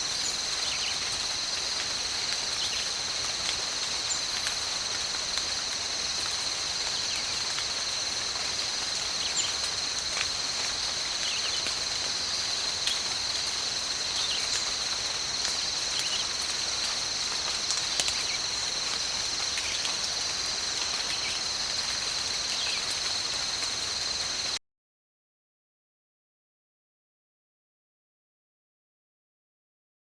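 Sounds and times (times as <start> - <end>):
high-pitched insect chorus: 0.0 - 24.6.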